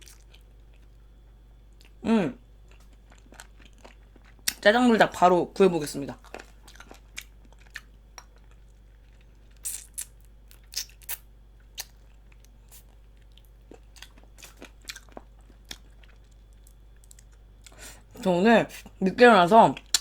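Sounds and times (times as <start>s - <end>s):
chewing with wet mouth clicks: 0.0s - 1.0s, 2.7s - 4.6s, 6.2s - 17.8s, 19.8s - 20.0s.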